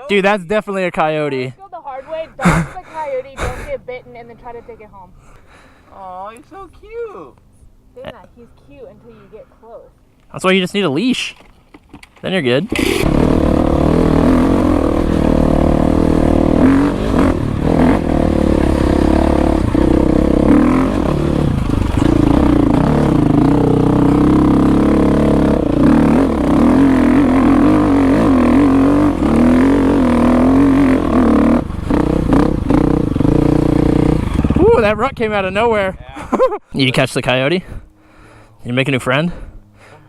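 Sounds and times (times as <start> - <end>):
dirt bike engine revving: 12.7 - 36.0.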